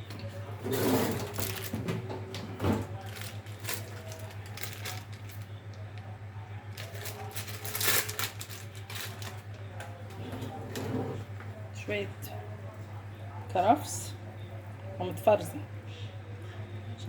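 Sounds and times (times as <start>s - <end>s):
steady low hum: 0.0s - 17.0s
dishes and utensils clattering: 0.5s - 3.3s.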